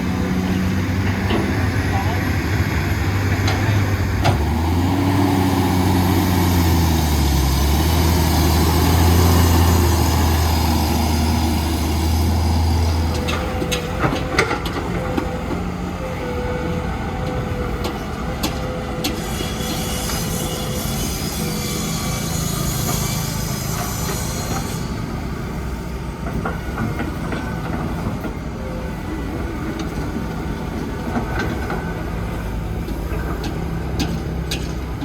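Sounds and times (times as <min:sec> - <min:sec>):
diesel machine engine under load: 0:00.0 - 0:19.7, 0:20.3 - 0:35.0.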